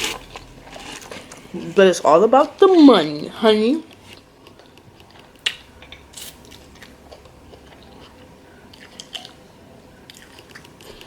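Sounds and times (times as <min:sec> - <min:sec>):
person chewing and biting: 0:00.0 - 0:01.4.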